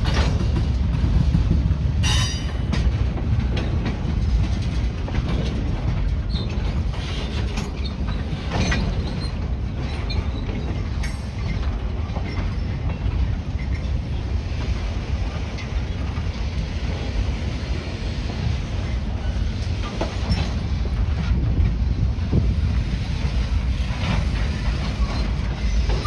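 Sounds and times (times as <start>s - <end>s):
train wheels rolling on rail: 0.0s - 26.0s
high metallic squeals and clanks: 2.0s - 2.7s.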